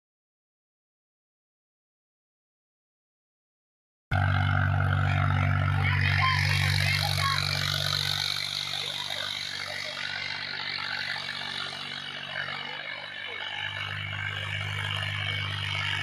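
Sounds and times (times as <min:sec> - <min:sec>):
tractor engine running: 0:04.1 - 0:16.0.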